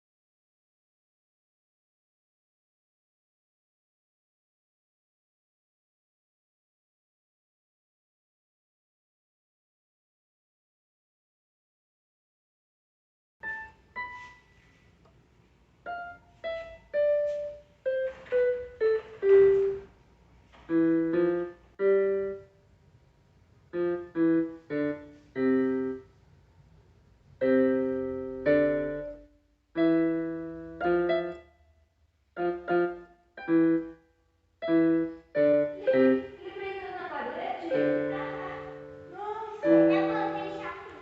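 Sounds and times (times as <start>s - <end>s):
piano music: 13.4s - 14.6s, 15.8s - 20.0s, 20.7s - 22.6s, 23.7s - 26.1s, 27.4s - 31.6s, 32.4s - 41.0s.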